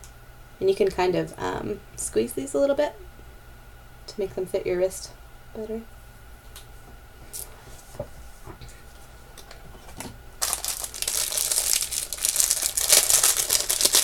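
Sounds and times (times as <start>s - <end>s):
packaging crinkling and rustling: 10.4s - 14.0s.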